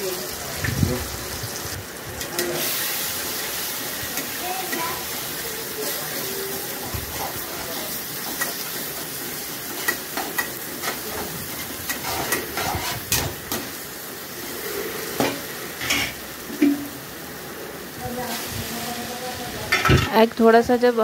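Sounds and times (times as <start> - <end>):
eggs sizzling in pan: 0.0 - 21.0
metal spatula scraping pan: 9.7 - 13.6, 15.1 - 16.9.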